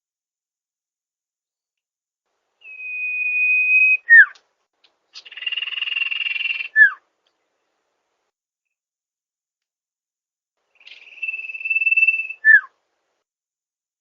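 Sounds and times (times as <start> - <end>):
bird whistles and trill: 2.6 - 4.4, 5.2 - 7.0, 10.8 - 12.7.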